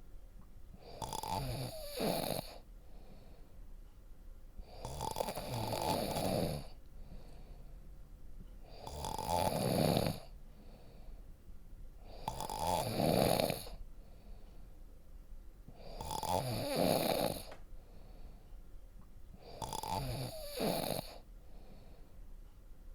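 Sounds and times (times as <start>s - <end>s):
quiet breathing: 0.7s - 22.8s
person snoring deeply: 0.8s - 2.6s, 4.7s - 6.8s, 8.8s - 10.3s, 12.1s - 13.8s, 15.8s - 17.5s, 19.4s - 21.2s.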